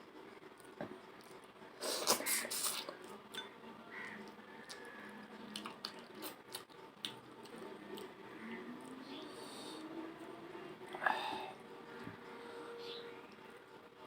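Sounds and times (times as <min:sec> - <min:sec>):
slurping: 0:01.2 - 0:03.4
wet chewing and smacking: 0:04.2 - 0:08.2.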